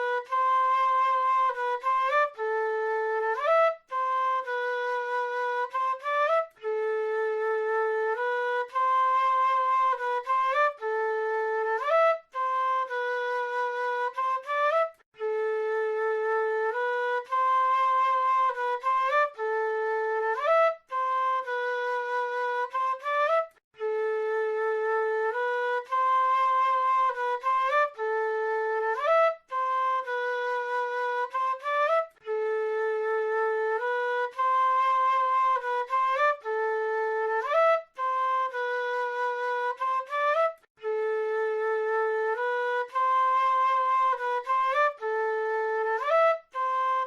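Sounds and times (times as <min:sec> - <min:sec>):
flute playing melodic phrase: 0:00.0 - 0:47.0.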